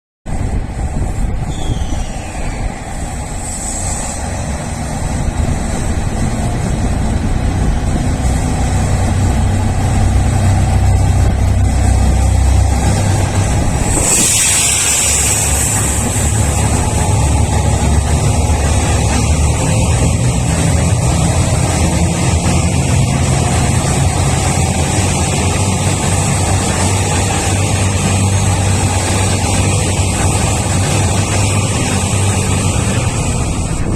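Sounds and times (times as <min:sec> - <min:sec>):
diesel train engine rumble: 0:00.3 - 0:33.9
loud hiss: 0:01.5 - 0:05.0, 0:13.5 - 0:19.0.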